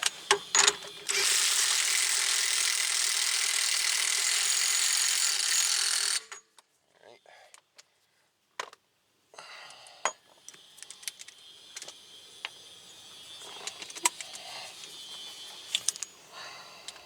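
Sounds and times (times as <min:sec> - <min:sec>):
metal tools clinking: 0:00.3 - 0:01.2, 0:13.2 - 0:16.2.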